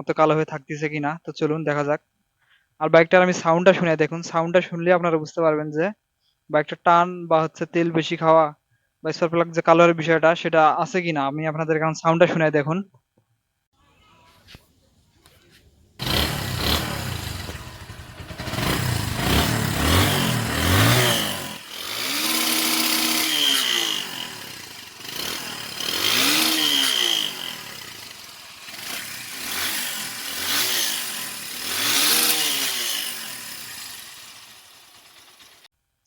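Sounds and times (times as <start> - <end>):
motorcycle engine revving: 15.8 - 35.7.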